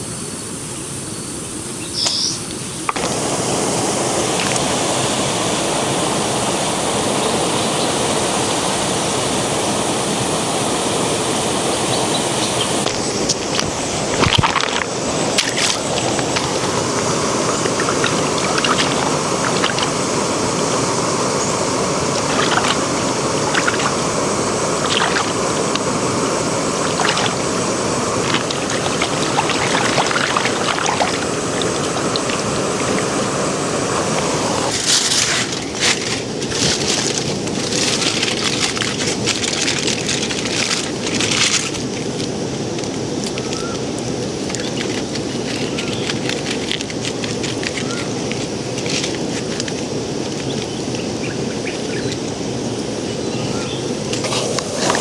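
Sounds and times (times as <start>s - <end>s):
stream water flowing: 2.9s - 43.2s, 54.0s - 55.0s
loud crackling sizzle: 3.0s - 50.6s.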